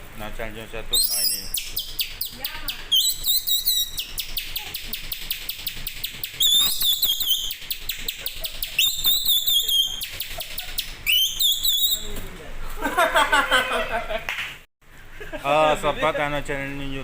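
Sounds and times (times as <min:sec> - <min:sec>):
man imitating bird chirps: 0:00.9 - 0:12.1.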